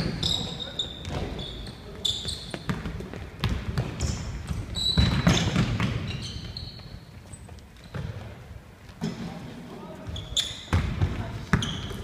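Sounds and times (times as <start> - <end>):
shoe squeaks: 0.0 - 2.8, 4.0 - 8.2, 10.0 - 10.8, 11.5 - 12.0
basketball bouncing on court floor: 1.0 - 1.5, 2.2 - 7.0, 7.8 - 8.4, 10.0 - 12.0.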